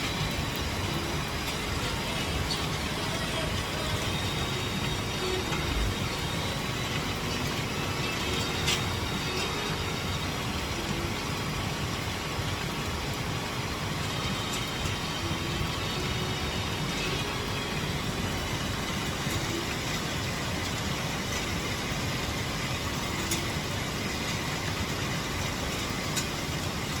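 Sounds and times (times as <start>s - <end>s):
heavy rain: 0.0s - 27.0s.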